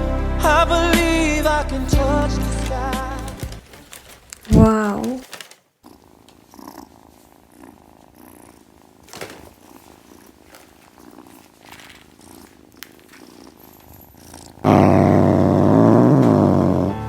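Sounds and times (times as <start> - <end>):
loud music: 0.0 - 3.6
cat purring: 3.2 - 17.0.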